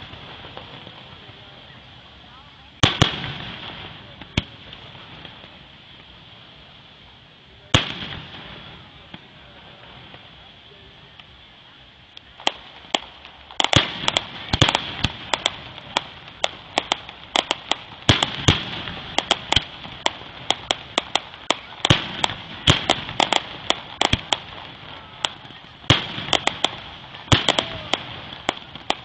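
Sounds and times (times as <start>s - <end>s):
crackling hiss: 0.0s - 29.0s
fireworks bangs and pops: 0.0s - 29.0s.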